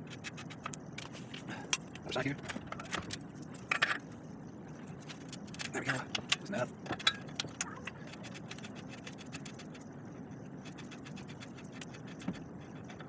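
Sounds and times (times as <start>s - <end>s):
threads scraping with fast ticks: 3.2s - 13.0s.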